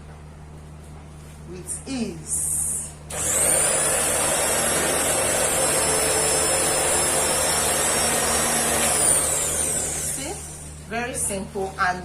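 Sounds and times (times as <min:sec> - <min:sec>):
fabric cutting machine motor whining: 0:03.1 - 0:10.8.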